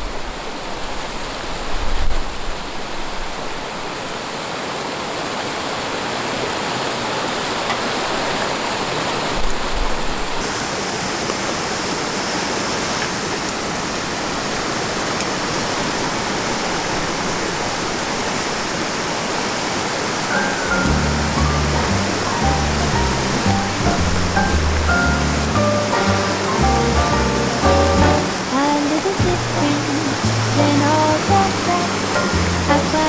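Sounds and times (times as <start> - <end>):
river water rushing: 2.4 - 33.0
bright high hiss: 20.2 - 33.0.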